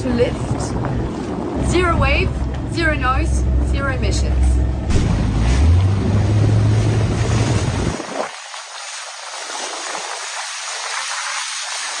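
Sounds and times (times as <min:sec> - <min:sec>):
hiss of water and wind: 0:00.0 - 0:04.3, 0:05.2 - 0:12.0
heavy low boat rumble: 0:00.0 - 0:08.6.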